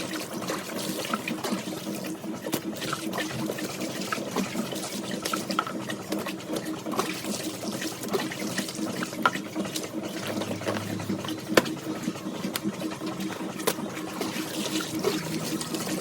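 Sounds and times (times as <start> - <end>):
water running and splashing: 0.0 - 16.0.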